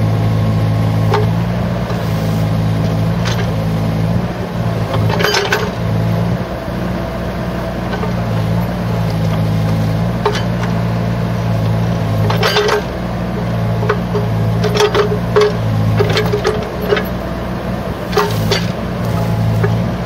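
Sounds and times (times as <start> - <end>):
excavator diesel engine running: 0.0 - 20.0
metallic clanking: 2.7 - 3.8, 4.8 - 5.9, 10.1 - 10.9, 12.1 - 17.2, 18.0 - 19.8.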